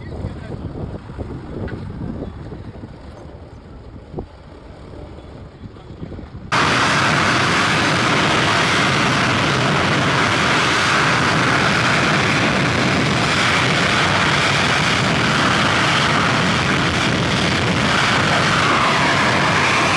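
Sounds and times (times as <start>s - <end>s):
jet engines roaring: 6.4s - 19.9s.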